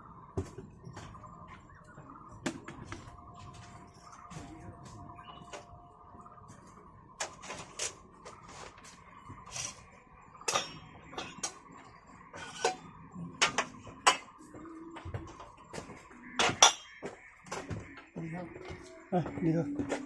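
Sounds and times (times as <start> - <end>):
dishes and utensils clinking: 10.4 - 11.6, 12.3 - 14.6, 15.3 - 17.7.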